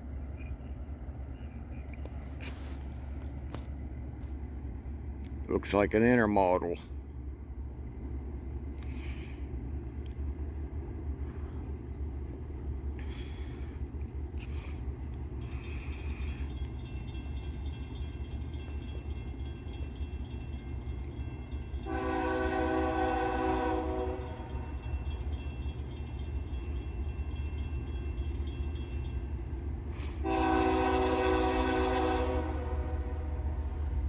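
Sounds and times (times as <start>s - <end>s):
train low rumble: 0.0s - 34.0s
locomotive air horn blasts: 21.8s - 24.7s, 30.0s - 33.6s.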